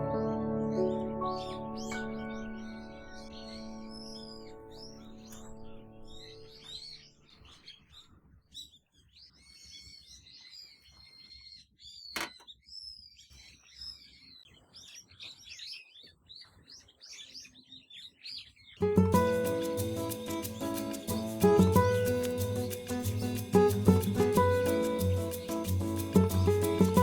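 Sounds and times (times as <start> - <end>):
small birds chirping: 0.3 - 27.0.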